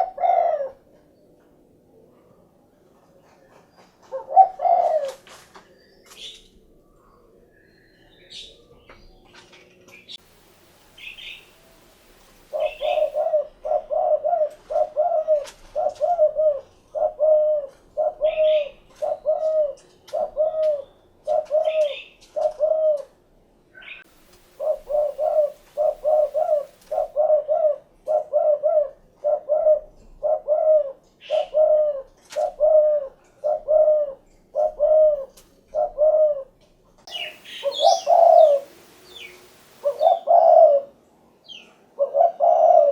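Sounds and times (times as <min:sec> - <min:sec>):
dove cooing: 0:00.0 - 0:01.0, 0:02.0 - 0:07.4, 0:11.0 - 0:23.2, 0:23.8 - 0:42.9
small birds chirping: 0:02.3 - 0:23.0, 0:23.7 - 0:28.3, 0:37.0 - 0:42.9.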